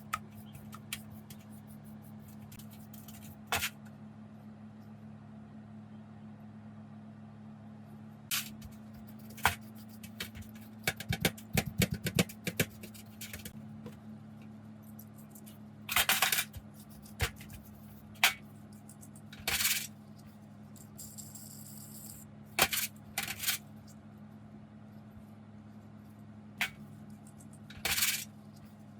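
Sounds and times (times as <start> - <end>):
steady low hum: 0.0 - 28.9
small metal parts clinking: 27.4 - 28.3.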